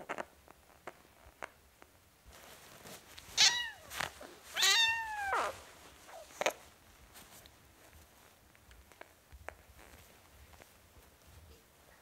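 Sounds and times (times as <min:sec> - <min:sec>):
kitten meowing: 0:03.4 - 0:03.9, 0:04.6 - 0:05.6.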